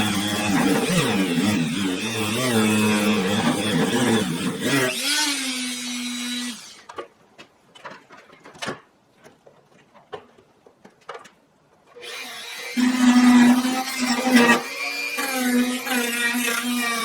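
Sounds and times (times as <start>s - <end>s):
electric power tool humming: 0.0s - 6.8s, 12.0s - 17.0s.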